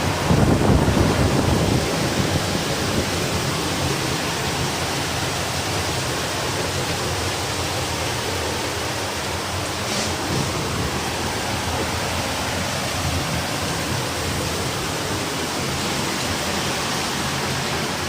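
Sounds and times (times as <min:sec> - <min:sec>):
heavy rain: 0:00.0 - 0:18.0
strong wind: 0:00.0 - 0:18.0.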